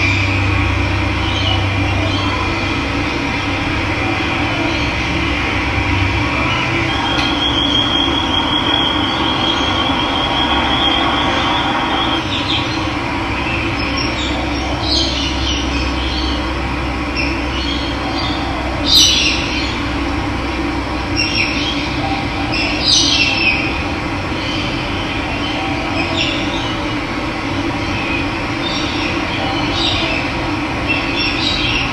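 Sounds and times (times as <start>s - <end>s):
birds calling: 0.0s - 20.2s, 21.0s - 31.9s
thin high trill: 5.9s - 12.4s.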